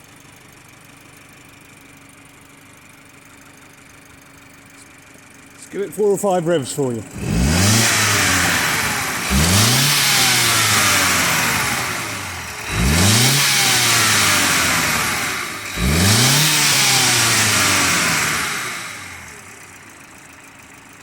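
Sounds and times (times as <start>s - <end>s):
car engine revving: 6.4s - 19.6s.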